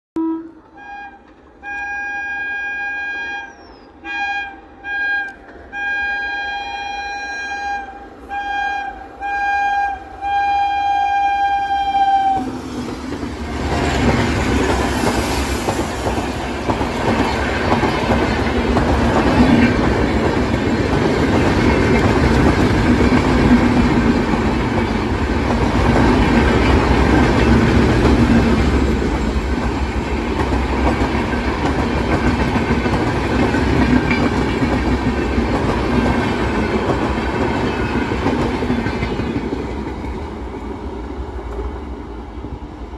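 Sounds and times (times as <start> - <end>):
electric train horn blasts: 0.2 - 12.5
train wheels rumbling: 0.4 - 42.9
wheels clacking over rail joints: 12.4 - 42.0.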